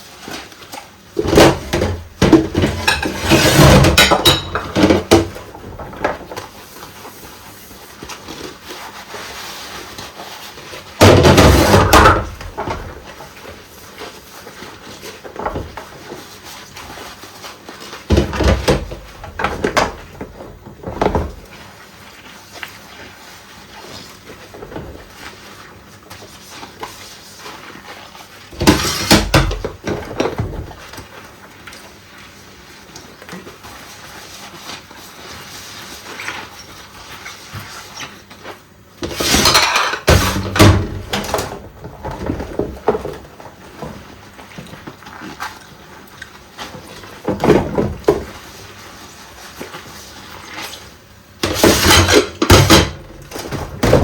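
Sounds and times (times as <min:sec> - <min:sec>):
dishes clattering in sink: 0:01.2 - 0:06.3, 0:11.0 - 0:13.2, 0:28.6 - 0:30.8, 0:39.0 - 0:43.3, 0:51.4 - 0:54.0.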